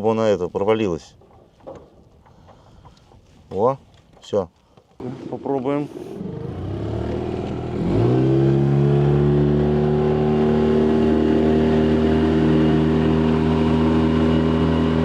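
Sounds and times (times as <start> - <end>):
outboard motor revving: 5.0 - 15.0.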